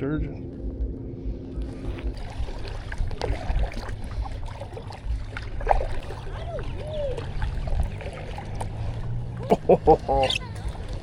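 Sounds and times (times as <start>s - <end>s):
low uneven rumble: 0.0s - 11.0s
water lapping against hull: 0.4s - 11.0s
small water drips: 1.6s - 11.0s.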